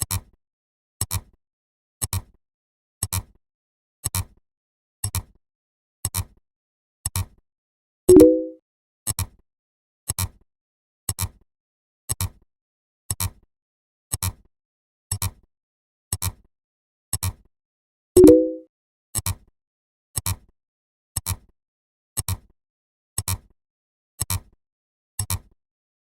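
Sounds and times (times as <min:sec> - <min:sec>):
pitched blip: 0:08.1 - 0:08.6, 0:18.2 - 0:18.6.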